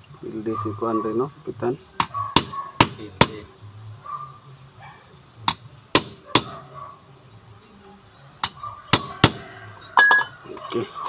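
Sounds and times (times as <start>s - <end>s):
hammer striking metal: 2.0s - 3.5s, 5.5s - 6.6s, 8.4s - 10.3s.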